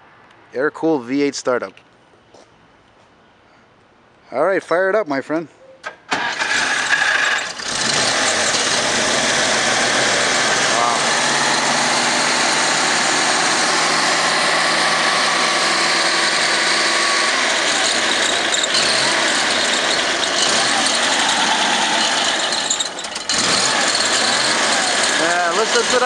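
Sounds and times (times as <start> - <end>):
car engine idling: 6.4 - 26.0.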